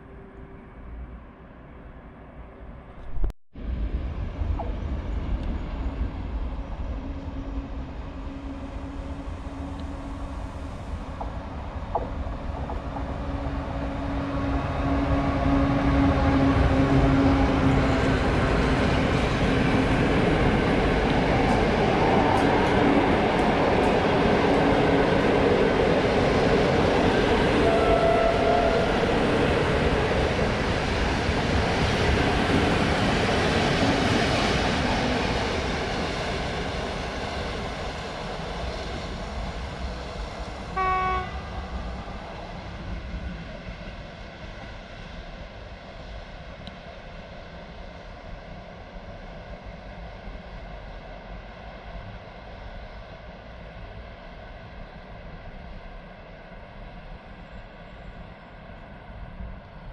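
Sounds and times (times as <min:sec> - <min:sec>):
train wheels rumbling and clattering: 0:04.2 - 0:40.7.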